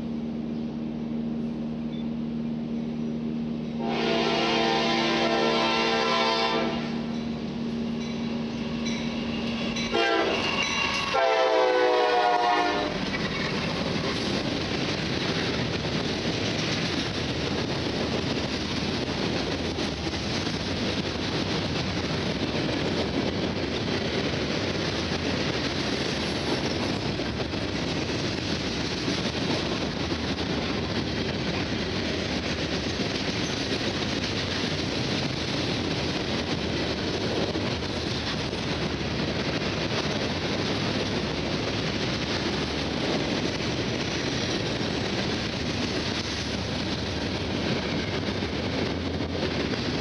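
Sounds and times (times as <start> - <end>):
train horn: 3.8 - 7.2, 9.9 - 13.1
freight cars rumbling and clattering: 12.6 - 50.0.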